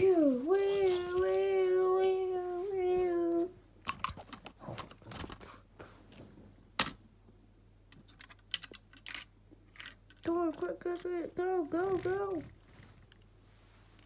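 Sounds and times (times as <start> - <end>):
plastic toy pieces clicking: 8.0 - 11.1.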